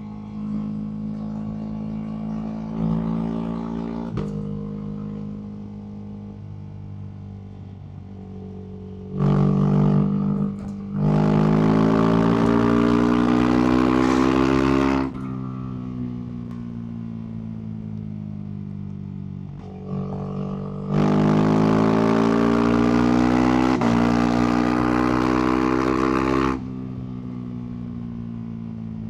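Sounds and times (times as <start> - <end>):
motorcycle engine revving: 8.4 - 17.4, 19.5 - 27.8.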